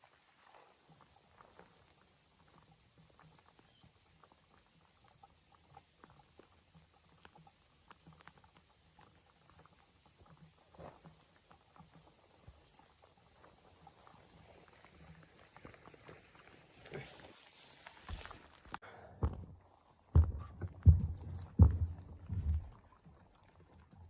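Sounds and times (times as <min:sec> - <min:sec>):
light ticks and crackles: 0:00.0 - 0:18.8.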